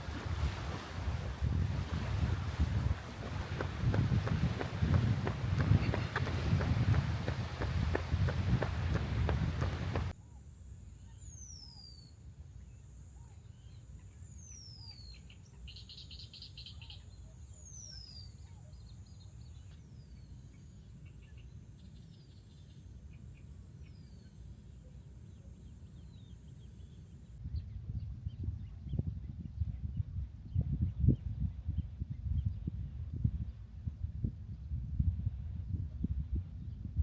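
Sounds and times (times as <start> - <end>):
low outdoor rumble: 0.0 - 10.2.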